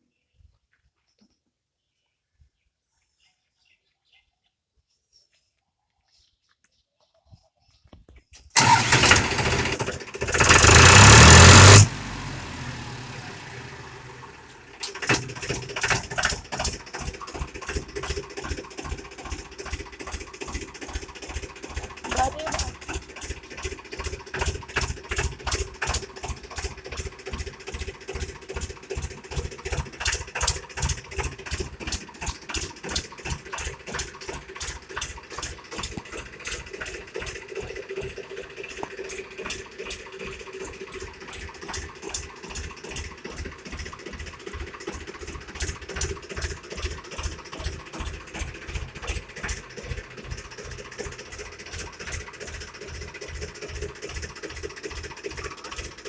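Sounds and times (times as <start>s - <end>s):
tractor diesel engine idling: 8.6s - 56.0s.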